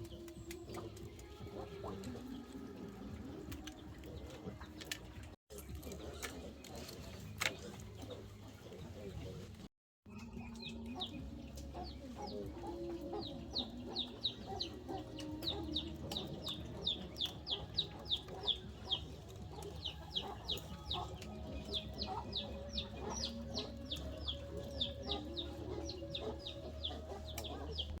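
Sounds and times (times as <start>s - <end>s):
chickens clucking: 0.0s - 28.0s
high downward-sliding chick peeps: 10.1s - 28.0s.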